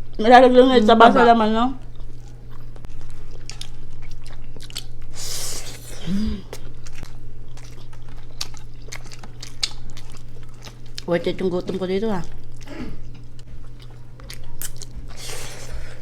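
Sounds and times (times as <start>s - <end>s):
chewing and wet mouth smacking: 1.8s - 15.9s
person breathing out: 5.2s - 6.5s
person humming mm: 5.2s - 6.6s.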